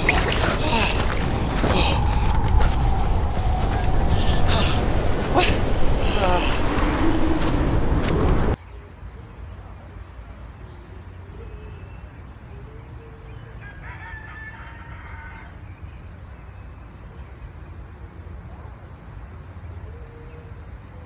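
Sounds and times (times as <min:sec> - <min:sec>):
rooster crowing: 0:13.6 - 0:15.6.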